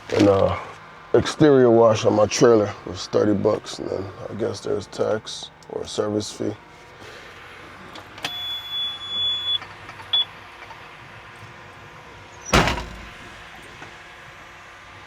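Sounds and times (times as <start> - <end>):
truck diesel engine idling: 0.0 - 15.0
loud thud: 12.6 - 13.5.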